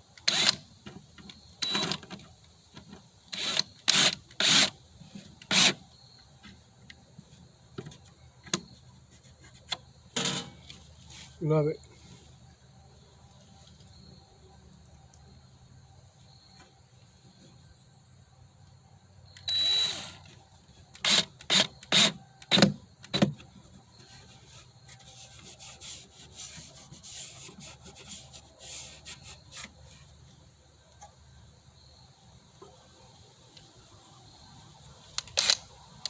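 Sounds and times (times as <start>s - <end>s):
scraping and rubbing on wood: 24.0s - 30.1s
hand tool strokes on wood: 24.2s - 30.0s.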